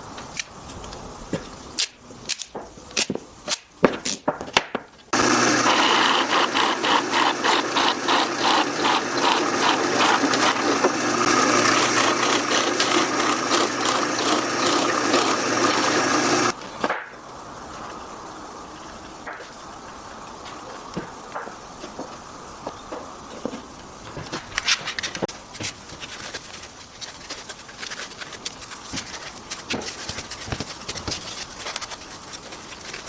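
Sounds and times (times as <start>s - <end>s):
woodworking power tool running: 5.1s - 16.6s.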